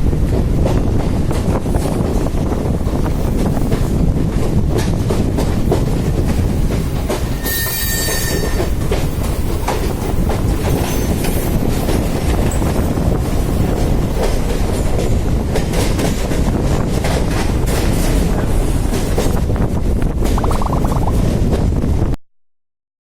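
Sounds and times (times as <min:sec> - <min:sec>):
electric train rumbling: 0:00.0 - 0:22.1
wheels clicking over rail joints: 0:00.6 - 0:19.6
high wheel squeal: 0:07.4 - 0:08.7.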